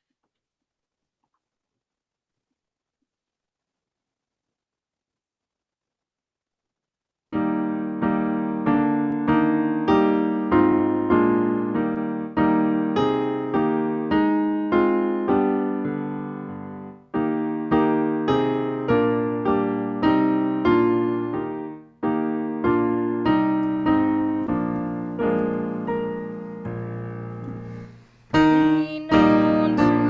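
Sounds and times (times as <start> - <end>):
piano playing slow chords: 7.4 - 30.0.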